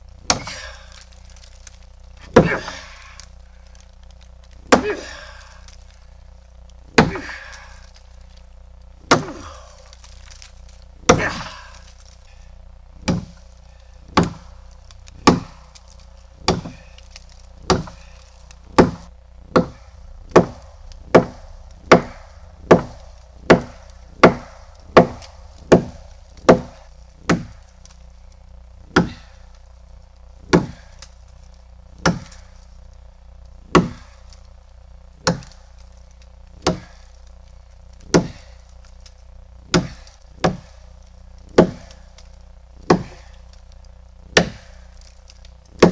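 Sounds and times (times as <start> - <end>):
axe chopping wood: 0.2 - 3.2, 4.6 - 5.8, 6.9 - 8.0, 9.0 - 12.2, 13.0 - 28.0, 28.8 - 29.6, 30.4 - 31.2, 32.0 - 32.6, 33.7 - 34.4, 35.2 - 35.9, 36.6 - 37.2, 38.0 - 40.8, 41.4 - 43.6, 44.3 - 45.9.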